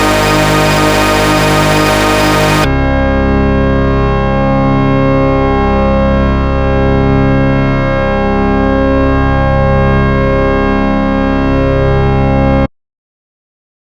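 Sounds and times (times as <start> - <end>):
synthesized chord with wavering beat: 0.0 - 2.7.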